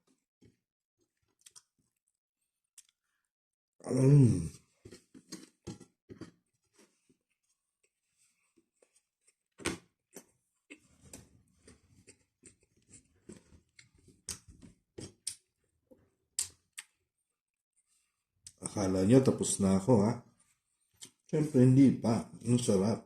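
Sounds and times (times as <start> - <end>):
wet chewing and lip smacks: 16.4 - 17.0.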